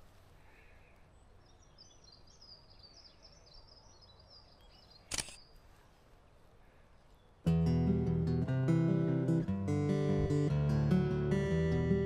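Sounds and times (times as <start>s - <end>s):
forest ambience: 0.0s - 9.1s
songbird twittering: 1.1s - 5.6s
sharp click: 5.1s - 5.4s.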